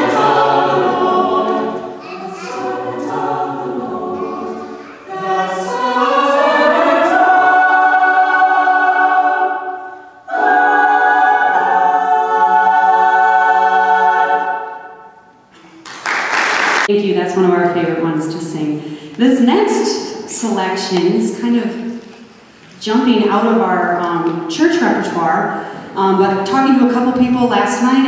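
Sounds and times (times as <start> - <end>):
choir singing: 0.0 - 15.3.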